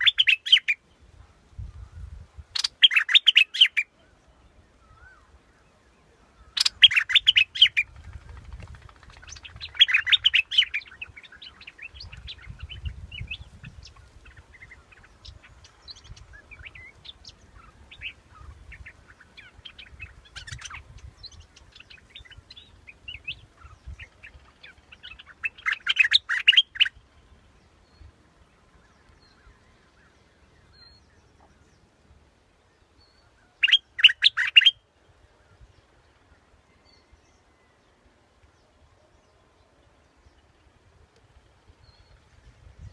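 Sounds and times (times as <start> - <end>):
bird bubbling song: 0.0 - 0.8, 1.8 - 4.2, 6.3 - 32.0, 32.6 - 35.6
faint bird chirps: 0.0 - 42.9.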